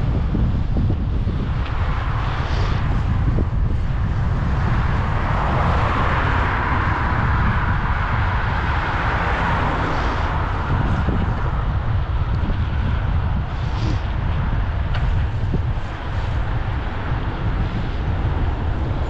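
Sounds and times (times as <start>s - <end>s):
wind rumbling on microphone: 0.0s - 19.0s
vehicle passing: 2.5s - 14.0s.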